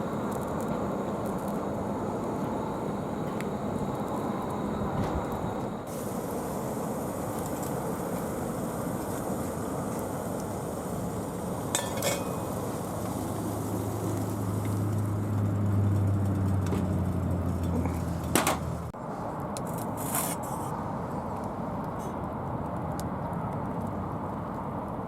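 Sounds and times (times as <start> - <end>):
low droning hum: 0.0 - 19.5
outdoor background noise: 0.0 - 25.0.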